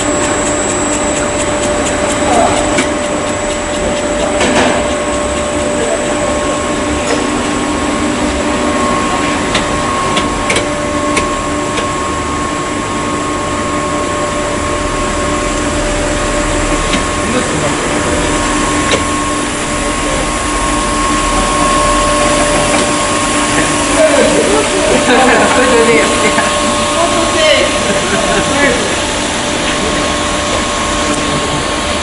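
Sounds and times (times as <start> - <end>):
high whine: 0.0 - 32.0
machine noise with hum: 0.0 - 32.0.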